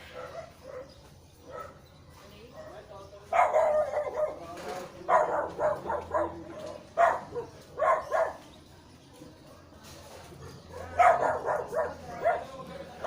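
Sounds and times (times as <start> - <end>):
dog barking: 0.1 - 1.8, 2.5 - 4.4, 5.1 - 8.4, 10.4 - 12.6.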